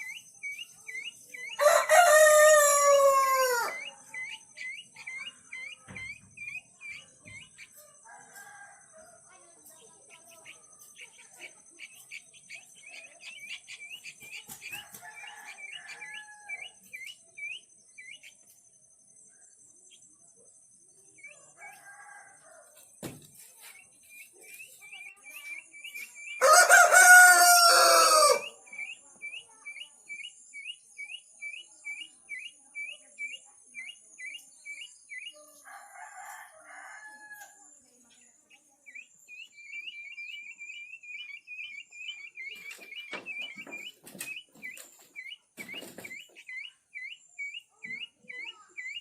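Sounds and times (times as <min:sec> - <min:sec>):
rooster crowing: 0:01.6 - 0:04.0, 0:14.8 - 0:16.7, 0:21.6 - 0:22.7, 0:26.4 - 0:28.6, 0:35.6 - 0:37.6.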